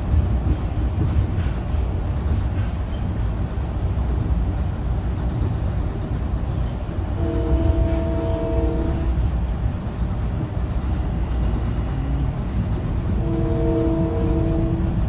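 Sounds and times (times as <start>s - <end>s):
train rumbling: 0.0s - 15.0s
train horn chord: 7.2s - 9.3s, 13.1s - 15.0s.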